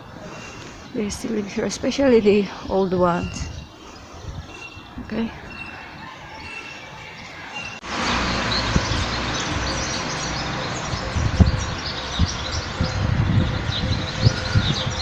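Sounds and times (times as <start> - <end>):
small birds chirping: 0.0 - 15.0
steady rushing noise: 7.4 - 15.0
low thumps: 8.2 - 10.0, 10.8 - 14.9.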